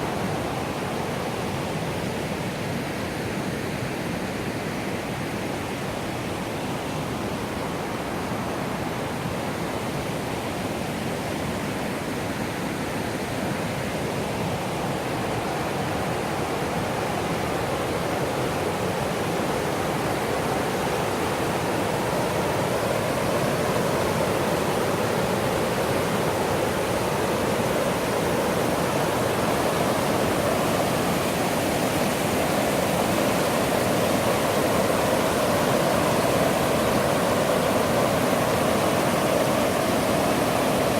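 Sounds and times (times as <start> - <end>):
rushing river water: 0.0 - 40.9.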